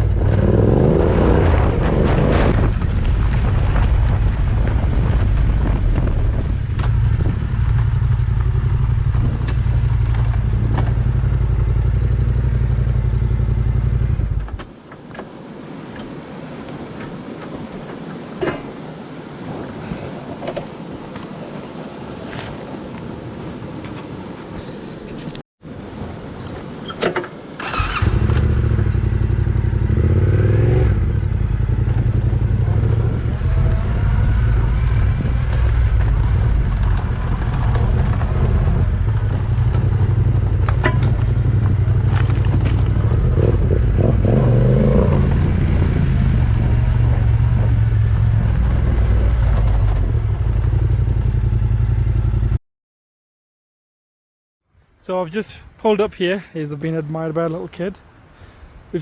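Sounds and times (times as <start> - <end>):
motorcycle engine revving: 0.0 - 2.8, 27.6 - 52.6.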